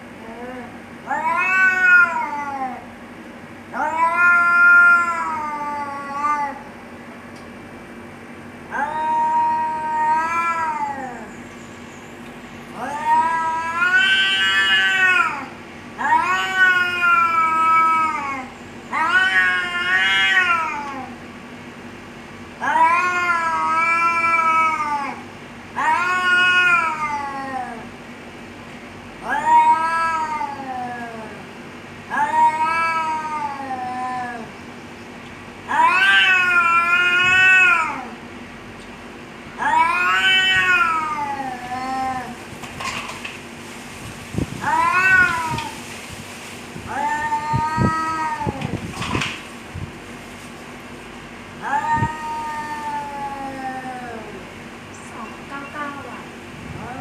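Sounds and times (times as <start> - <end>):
cats yowling: 0.2 - 2.9, 3.7 - 6.7, 8.7 - 11.5, 12.7 - 21.2, 22.6 - 28.0, 29.2 - 34.6, 35.6 - 38.2, 39.6 - 43.1, 44.5 - 45.8, 46.8 - 49.4, 51.6 - 56.2.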